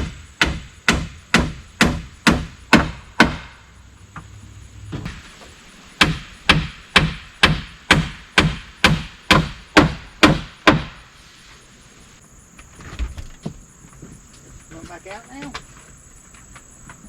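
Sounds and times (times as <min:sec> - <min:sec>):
hammer striking nail into wood: 0:00.0 - 0:03.6, 0:06.0 - 0:11.0.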